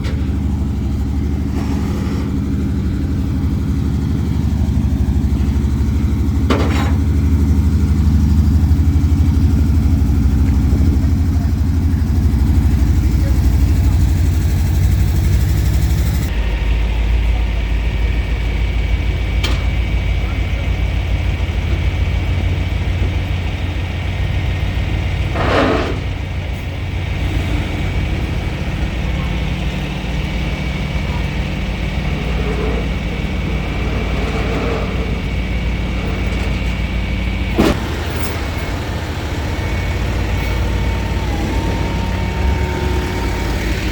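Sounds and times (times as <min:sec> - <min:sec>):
tow truck engine running: 0:00.0 - 0:43.9
sharp clunk: 0:06.5 - 0:07.1, 0:37.5 - 0:38.9.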